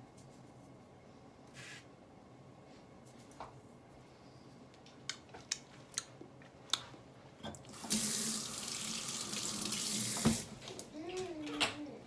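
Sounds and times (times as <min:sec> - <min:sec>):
water running: 0:07.6 - 0:10.9.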